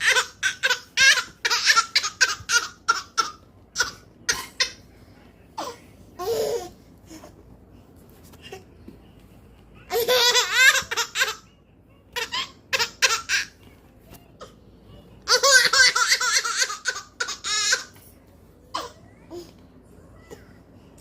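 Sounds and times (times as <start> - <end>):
baby giggling: 9.9 - 11.4, 15.3 - 17.9.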